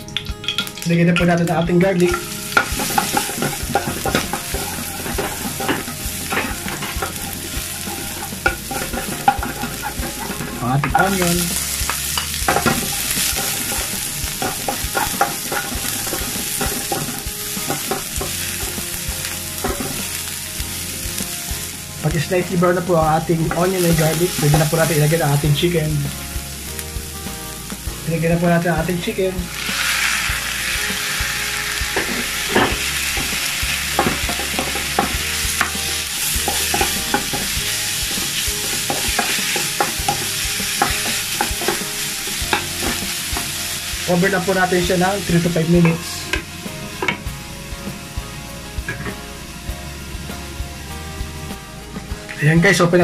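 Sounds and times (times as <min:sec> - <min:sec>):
onion and garlic sizzling in oil: 0:00.0 - 0:53.0
wooden spatula scraping a pan: 0:02.0 - 0:18.9.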